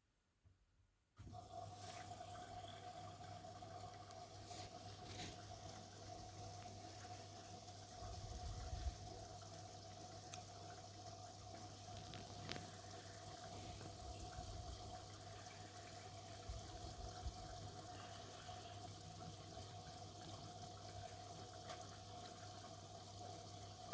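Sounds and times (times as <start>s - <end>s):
washing machine running: 1.2s - 23.9s
water flowing inside machine: 1.2s - 23.9s
faint steady tone: 12.6s - 21.3s.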